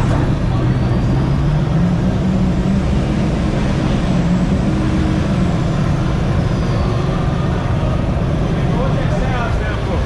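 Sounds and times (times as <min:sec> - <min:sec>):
car engines rumbling at low revs: 0:00.0 - 0:10.0.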